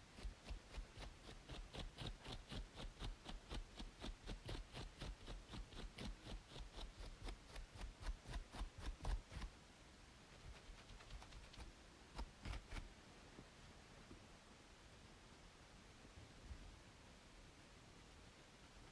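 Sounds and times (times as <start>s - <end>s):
scratching on scalp: 0.0s - 9.5s, 10.3s - 12.9s
faint white noise hiss: 0.0s - 18.9s.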